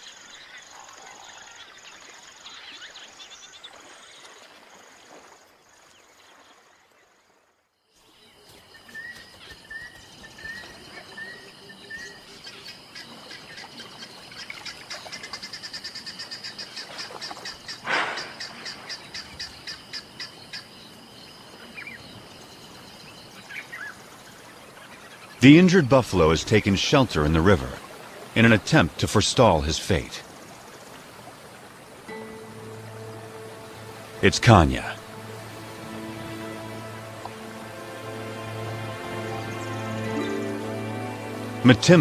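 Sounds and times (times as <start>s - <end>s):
bird chirps: 8.0s - 20.9s.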